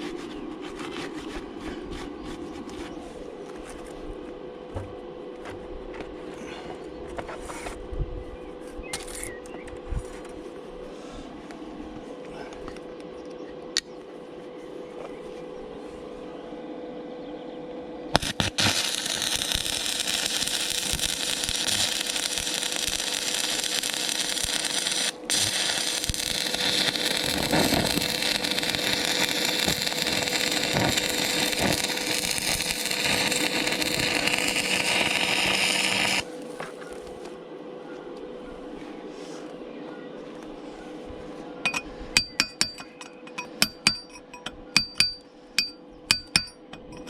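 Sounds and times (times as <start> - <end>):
steady hum: 0.0 - 47.0
electric arc welding: 18.2 - 36.3.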